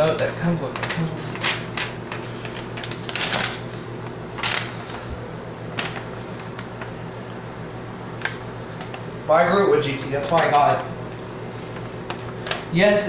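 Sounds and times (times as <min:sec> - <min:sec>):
paper rustling: 0:00.0 - 0:07.0, 0:09.8 - 0:10.9, 0:11.5 - 0:12.8.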